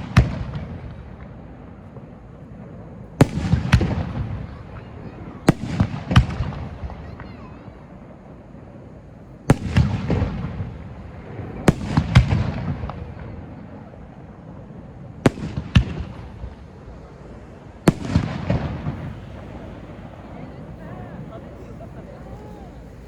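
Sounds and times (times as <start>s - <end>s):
firework crackle and echo: 0.0s - 23.0s
firework shells bursting: 15.3s - 23.0s.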